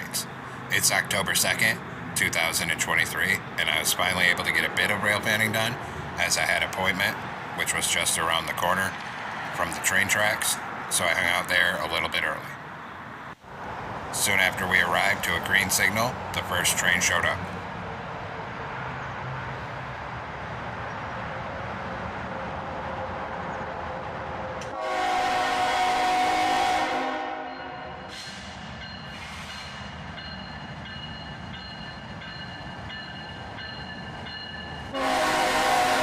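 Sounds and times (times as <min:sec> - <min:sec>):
freight train rumble: 0:00.0 - 0:36.0
locomotive air horn blasts: 0:24.7 - 0:28.2, 0:34.9 - 0:36.0.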